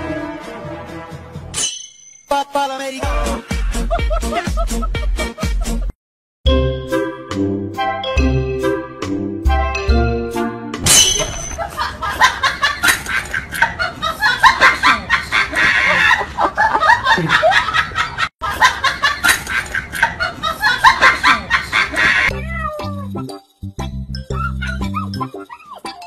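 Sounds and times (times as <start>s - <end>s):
people laughing: 3.1s - 5.9s, 11.6s - 22.3s.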